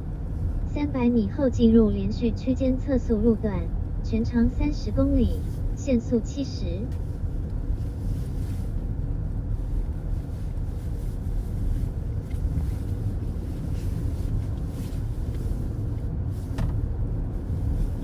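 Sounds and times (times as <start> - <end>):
car road rumble at highway speed: 0.0 - 18.0.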